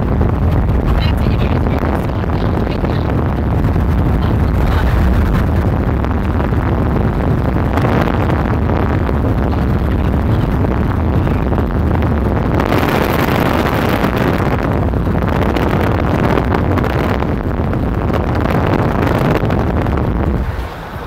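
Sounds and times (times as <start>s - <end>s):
road and engine noise: 0.0s - 21.0s
wind rushing over microphone: 0.0s - 21.0s.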